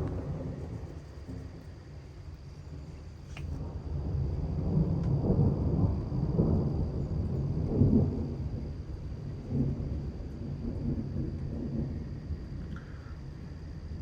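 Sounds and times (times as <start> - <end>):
rolling thunder: 0.0 - 1.7, 3.6 - 14.0.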